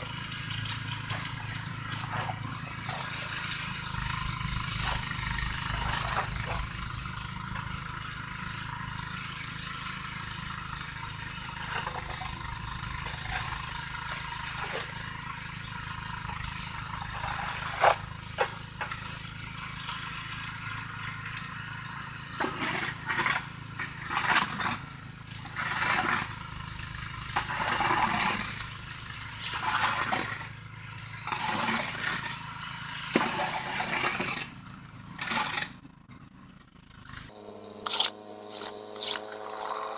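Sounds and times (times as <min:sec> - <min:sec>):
engine humming: 0:00.0 - 0:39.9
snow shovel scraping pavement: 0:01.0 - 0:07.6, 0:17.0 - 0:18.6, 0:22.4 - 0:24.8, 0:25.5 - 0:28.7, 0:29.4 - 0:30.4, 0:31.2 - 0:32.5, 0:33.1 - 0:35.8, 0:37.3 - 0:39.9.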